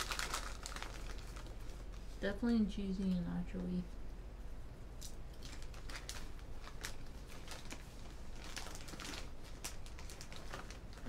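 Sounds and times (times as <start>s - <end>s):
popcorn crunching while chewed: 0.0s - 2.0s, 5.0s - 11.0s
snack bag crinkling: 0.0s - 2.0s, 5.0s - 11.0s.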